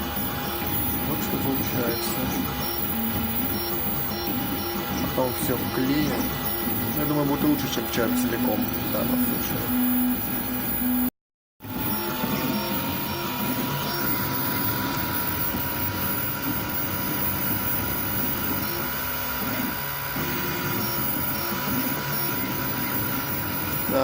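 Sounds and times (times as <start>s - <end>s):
cooling fan noise: 0.0s - 11.1s
stepper motors whirring: 0.0s - 24.0s
thin high whine: 0.0s - 24.0s.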